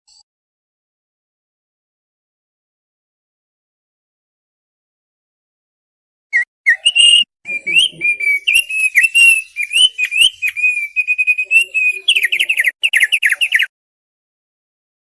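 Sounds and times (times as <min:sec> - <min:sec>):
bird singing whistled notes: 0:06.3 - 0:13.7.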